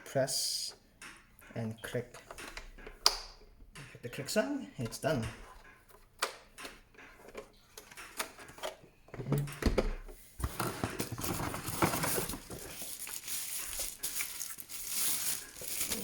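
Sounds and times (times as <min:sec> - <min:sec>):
plastic parts clicking and knocking: 0:00.7 - 0:16.0
plastic handling rustle: 0:10.4 - 0:16.0.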